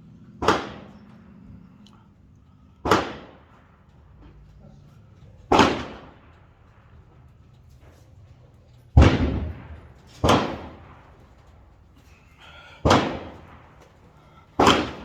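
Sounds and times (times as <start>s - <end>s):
rifle shots echoing: 0.4s - 1.7s, 2.8s - 4.2s, 5.4s - 7.5s, 9.0s - 12.0s, 12.8s - 15.0s.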